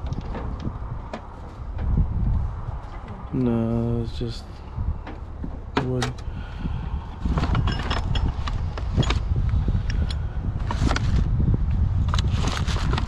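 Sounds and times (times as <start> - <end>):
junk knocking and clattering: 0.0 - 3.5, 4.8 - 6.6, 7.2 - 9.3
steady low rumble: 0.0 - 13.0.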